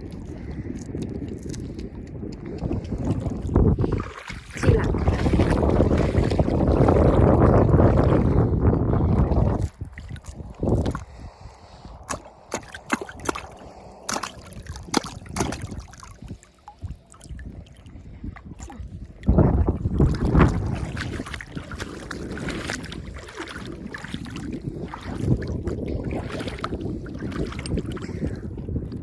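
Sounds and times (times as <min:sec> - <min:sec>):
oyster shells and stones clicking: 0:00.0 - 0:03.4
water sloshing: 0:00.0 - 0:29.0
wind rumble on microphone: 0:00.0 - 0:29.0.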